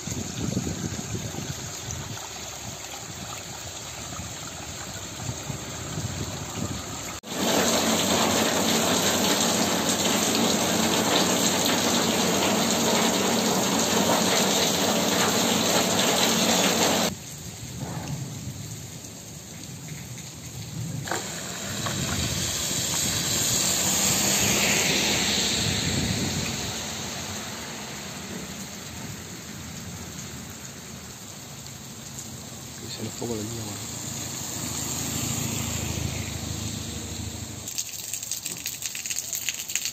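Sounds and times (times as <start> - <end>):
water running along kerb: 0.0 - 39.9
heavy rain on a street: 4.6 - 39.9
car tyres hissing on wet road: 5.3 - 18.6, 21.0 - 37.7.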